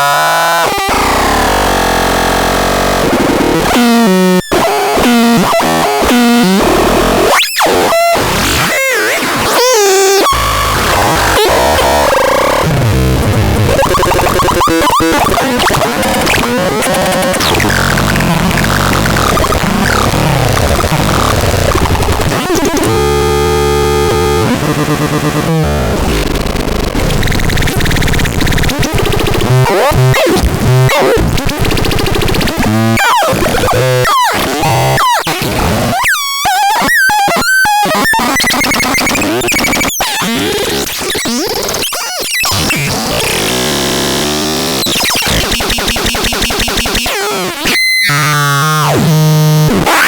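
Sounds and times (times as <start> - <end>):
harsh synthesizer tones: 4.9 - 41.5.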